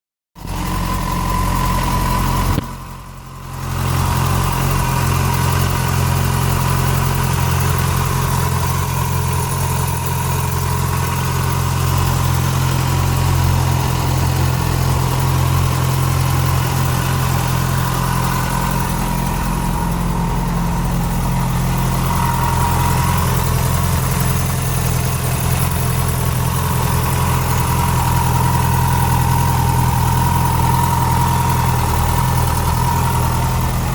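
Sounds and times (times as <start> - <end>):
motorcycle engine idling: 0.4 - 33.9.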